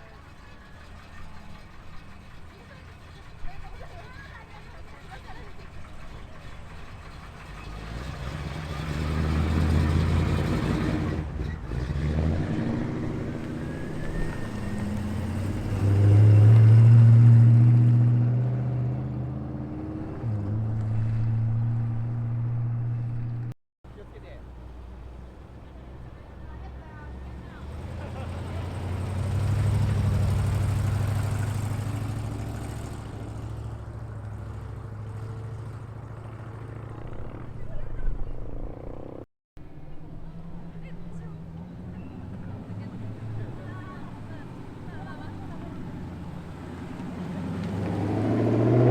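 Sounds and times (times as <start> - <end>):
car exhausts driving past: 7.1 - 23.6, 27.1 - 37.6, 40.2 - 48.9.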